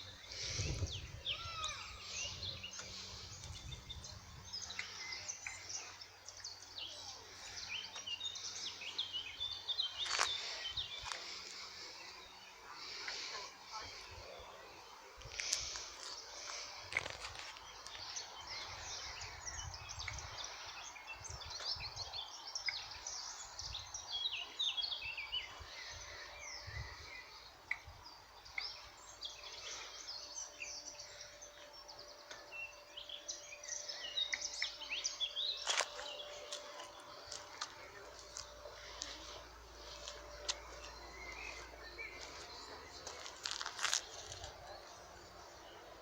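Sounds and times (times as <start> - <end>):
birds chirping and trilling: 0.0 - 46.0.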